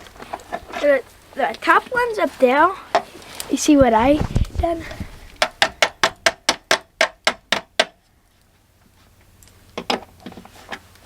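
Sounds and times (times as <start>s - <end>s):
sharp knocks on pipe fittings: 5.4s - 8.0s.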